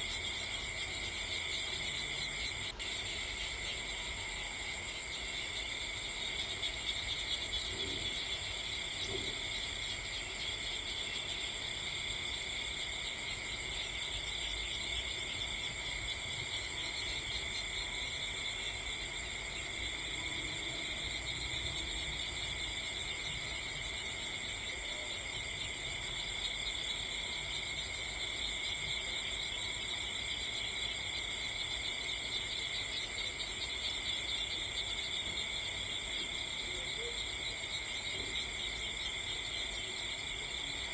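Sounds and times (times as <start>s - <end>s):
crickets and insects trilling: 0.0s - 40.9s.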